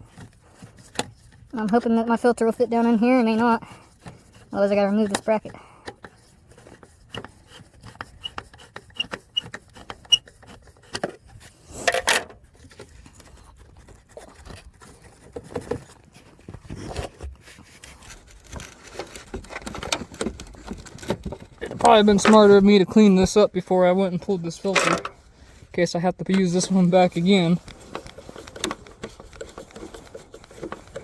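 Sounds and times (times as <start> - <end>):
hand tools clicking and knocking: 0.0 - 11.2, 17.8 - 31.0.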